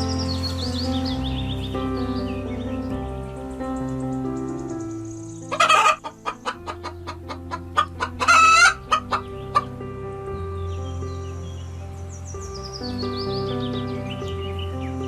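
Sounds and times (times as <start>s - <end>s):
soft background music: 0.0s - 15.0s
chicken clucking: 5.5s - 9.7s
chicken squawking: 5.5s - 9.7s.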